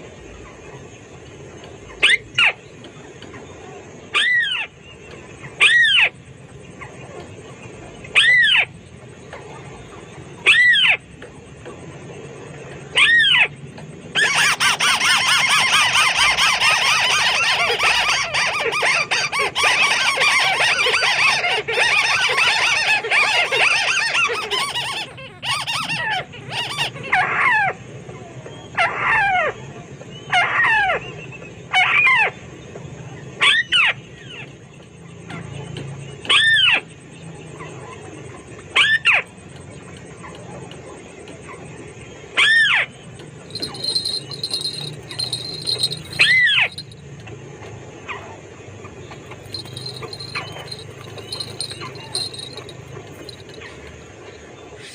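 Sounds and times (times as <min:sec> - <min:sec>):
bird chattering: 0:43.5 - 0:47.0, 0:49.3 - 0:53.8.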